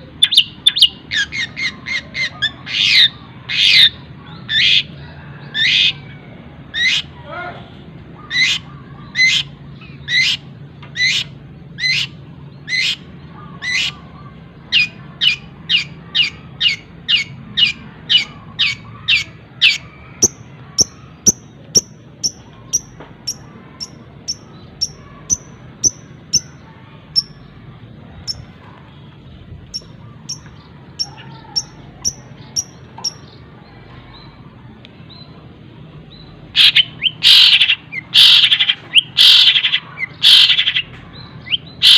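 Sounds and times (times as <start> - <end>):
bird harsh calls: 0.2 - 7.2, 8.1 - 28.6, 36.2 - 41.9.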